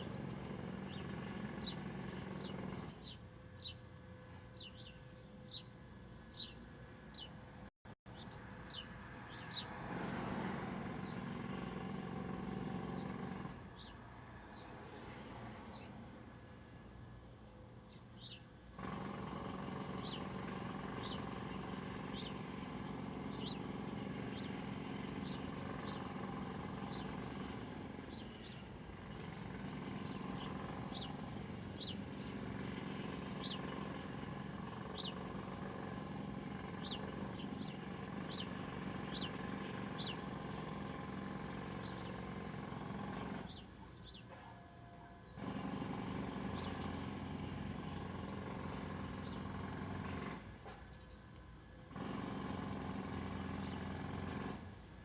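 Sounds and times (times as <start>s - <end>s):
small bird chirping: 0.0s - 7.4s, 8.1s - 9.8s, 12.6s - 14.8s, 15.6s - 17.0s, 17.8s - 18.5s, 19.7s - 40.8s, 41.4s - 42.5s, 43.4s - 44.3s, 46.4s - 47.0s, 47.7s - 49.5s.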